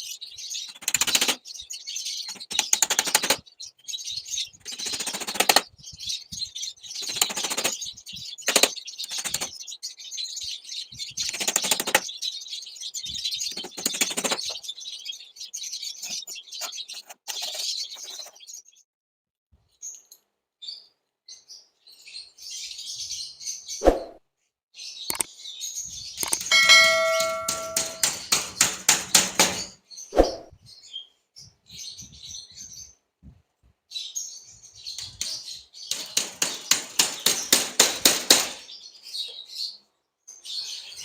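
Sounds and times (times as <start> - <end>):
small birds chirping: 0.0 - 18.9, 19.6 - 24.0, 24.7 - 41.0
wings fluttering: 0.6 - 1.4, 2.2 - 3.4, 4.6 - 9.6, 11.2 - 12.1, 13.4 - 14.7, 16.0 - 18.4.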